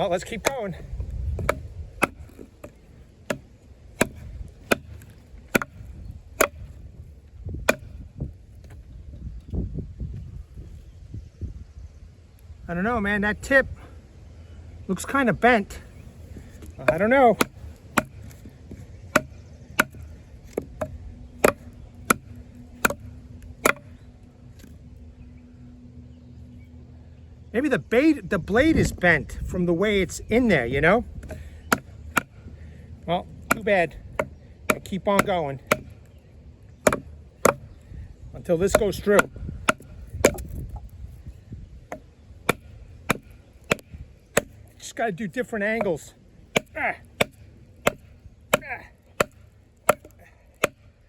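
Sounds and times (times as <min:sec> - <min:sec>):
baton knocking knife into wood: 0:01.3 - 0:06.7, 0:07.7 - 0:08.0, 0:16.8 - 0:23.9, 0:33.5 - 0:36.0, 0:36.8 - 0:37.7, 0:41.9 - 0:44.6.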